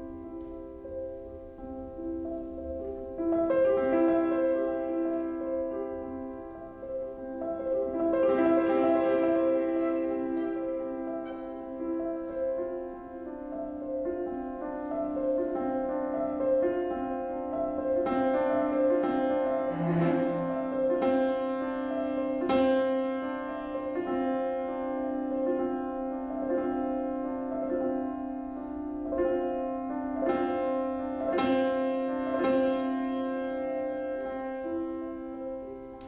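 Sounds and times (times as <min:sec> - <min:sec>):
piano violin and cello playing: 0:03.6 - 0:35.7.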